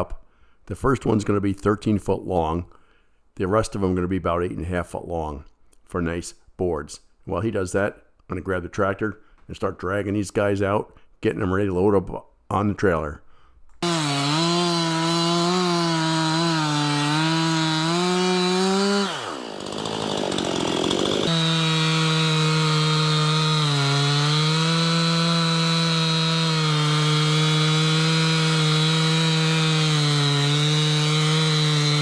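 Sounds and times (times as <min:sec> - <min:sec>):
chainsaw cutting log: 0:13.8 - 0:32.0.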